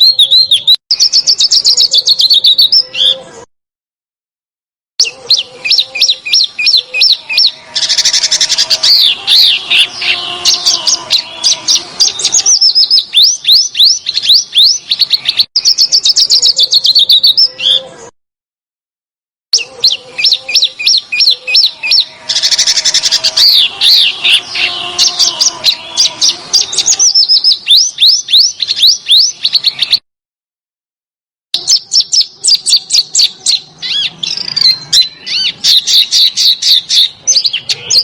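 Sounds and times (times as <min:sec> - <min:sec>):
songbird song: 0:00.0 - 0:03.5, 0:05.0 - 0:18.1, 0:19.6 - 0:30.0, 0:31.6 - 0:38.0
bird harsh chattering: 0:05.0 - 0:18.0, 0:19.6 - 0:30.0, 0:31.6 - 0:38.0.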